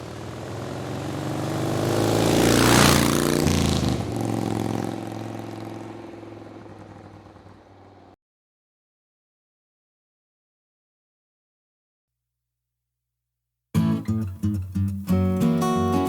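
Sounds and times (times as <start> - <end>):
motorcycle passing by: 0.0 - 8.2.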